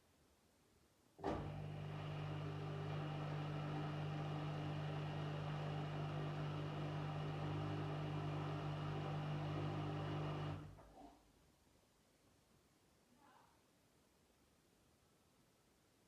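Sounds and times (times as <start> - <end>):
washing machine running: 1.2 - 10.8.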